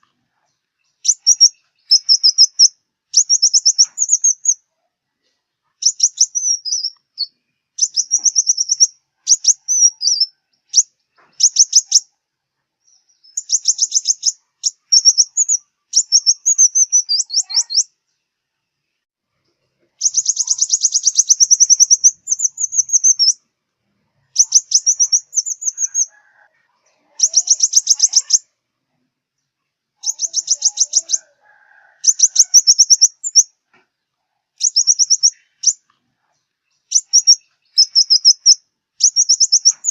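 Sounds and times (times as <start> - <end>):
sunbird trills and twittering: 0.5 - 4.6, 5.8 - 12.1, 12.8 - 18.3, 20.0 - 23.4, 24.3 - 26.4, 27.0 - 28.5, 30.0 - 31.4, 32.0 - 33.6, 34.6 - 39.9.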